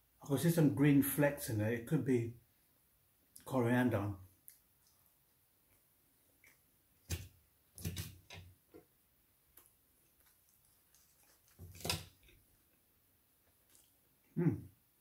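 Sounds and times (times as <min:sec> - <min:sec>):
crunching fried food: 0:09.6 - 0:12.5.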